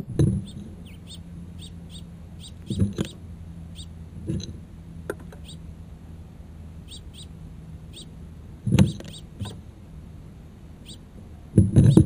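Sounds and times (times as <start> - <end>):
bird chirps: 0.0 - 4.0, 5.3 - 5.7, 6.8 - 9.6, 10.8 - 11.1, 11.8 - 12.0
steady low hum: 0.0 - 12.0.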